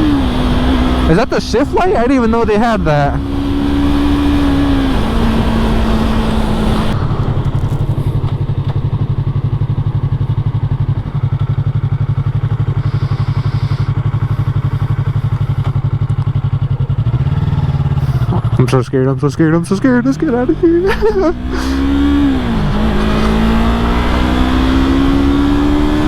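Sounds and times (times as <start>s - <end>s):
motorcycle engine: 0.0s - 26.0s
wind rush: 1.6s - 10.4s.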